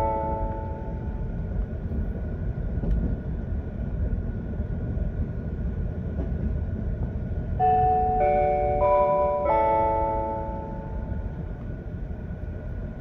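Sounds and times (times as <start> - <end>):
faint steady high tone: 0.0 - 1.3, 7.6 - 11.5
train cabin low rumble: 0.0 - 13.0
electronic chime melody: 7.6 - 11.3.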